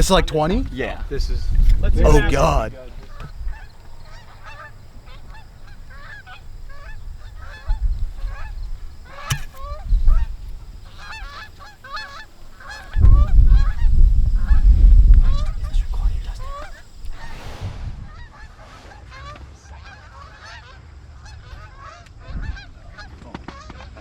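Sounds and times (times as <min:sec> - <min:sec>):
geese honking: 0:02.0 - 0:17.4.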